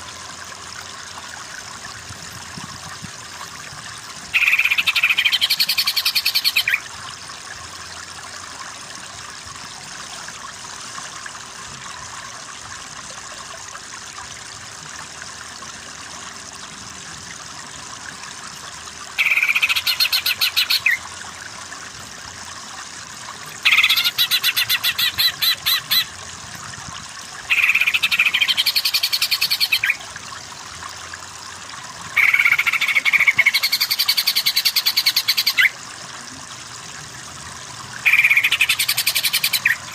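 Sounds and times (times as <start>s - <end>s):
bird chattering song: 4.4s - 6.8s, 19.2s - 21.0s, 23.6s - 26.1s, 27.5s - 30.0s, 32.2s - 35.7s, 38.1s - 39.8s.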